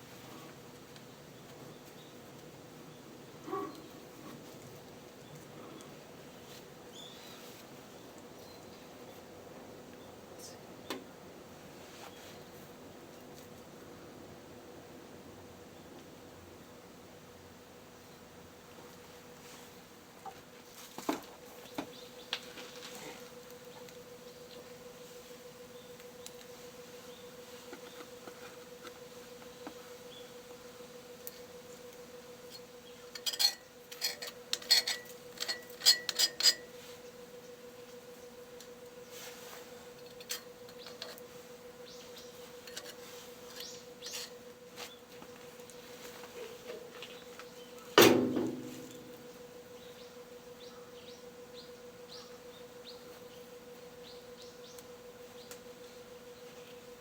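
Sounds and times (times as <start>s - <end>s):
faint steady hum: 0.0s - 57.0s
metal tools clinking: 33.1s - 36.7s
loud metallic clang: 48.0s - 49.2s.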